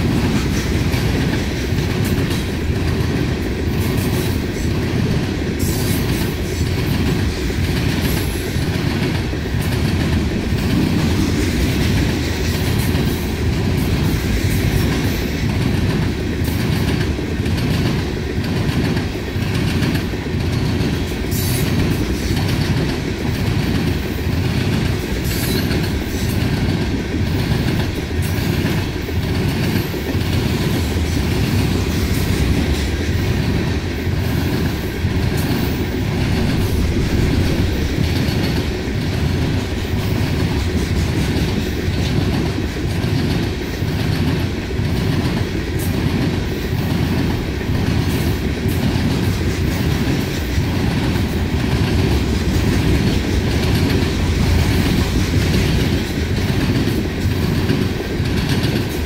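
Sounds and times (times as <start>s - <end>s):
freight train rumble: 0.0s - 59.0s
wheels clacking over rail joints: 0.0s - 59.0s.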